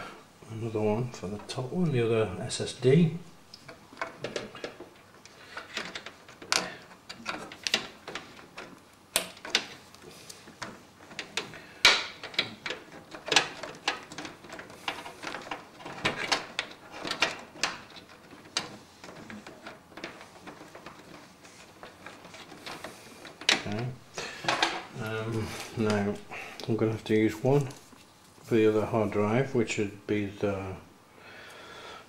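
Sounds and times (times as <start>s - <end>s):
cables clicking and scraping: 3.5s - 28.8s.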